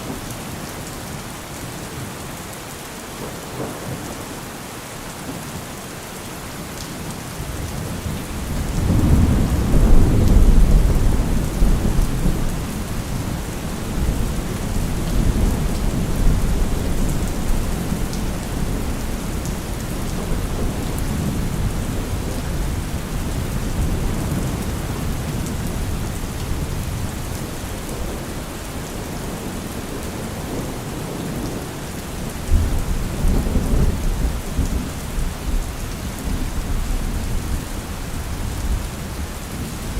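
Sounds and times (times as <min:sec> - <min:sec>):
steady rain falling: 0:00.0 - 0:39.9
rolling thunder rumble: 0:07.7 - 0:31.6, 0:32.5 - 0:39.0.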